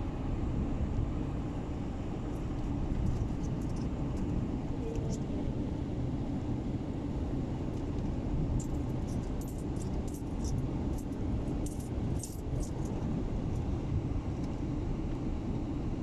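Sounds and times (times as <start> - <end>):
steady low rumble: 0.0 - 16.0
light metallic clinks and jingles: 2.3 - 4.0, 8.6 - 13.0.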